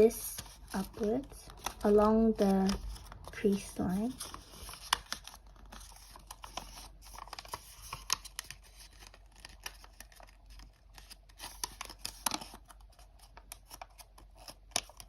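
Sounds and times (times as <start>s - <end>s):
paper folding and creasing: 0.0s - 15.0s.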